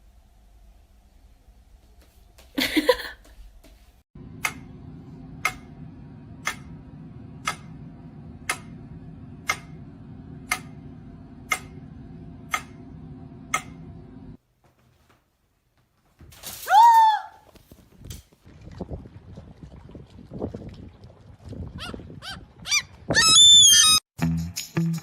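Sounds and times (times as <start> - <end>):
low hum: 4.2 - 14.4
steady ticking: 7.4 - 13.9.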